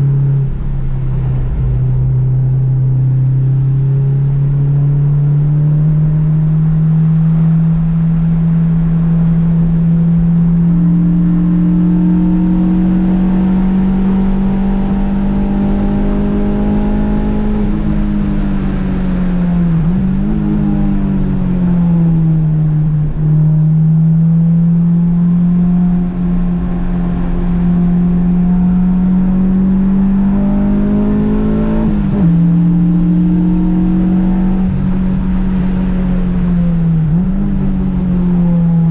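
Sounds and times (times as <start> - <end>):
car engine revving hard: 3.5 - 18.4, 23.8 - 38.9.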